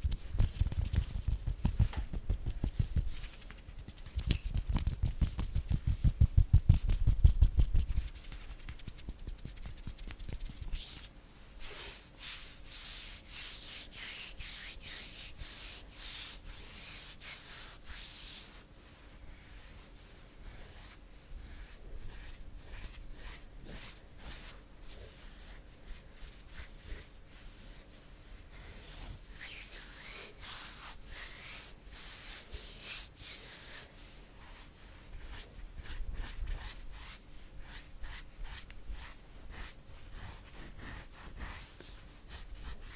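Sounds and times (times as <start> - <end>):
heavier hand pats: 0.0 - 10.8
hands rubbing together: 0.0 - 18.6.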